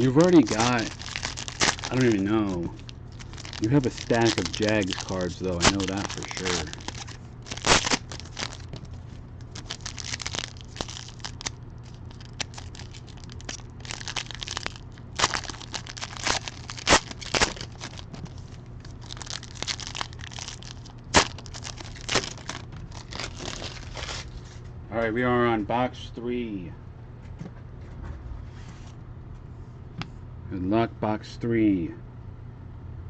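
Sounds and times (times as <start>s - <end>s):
wrappers crinkled and torn: 0.0s - 24.6s
steady low hum: 0.0s - 33.0s.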